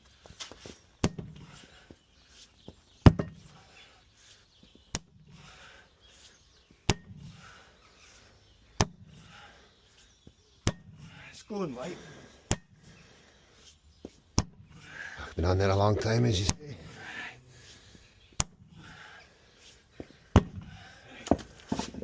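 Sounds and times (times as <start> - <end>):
scuffing and shuffling: 0.0 - 0.9, 21.3 - 22.0.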